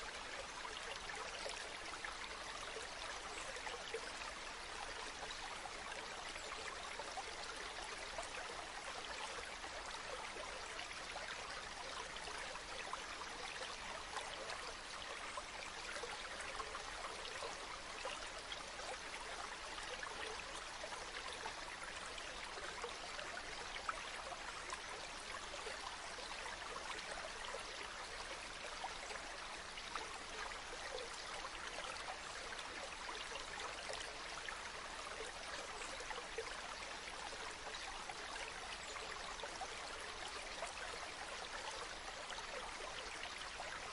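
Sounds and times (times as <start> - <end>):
stream babbling: 0.0 - 43.9.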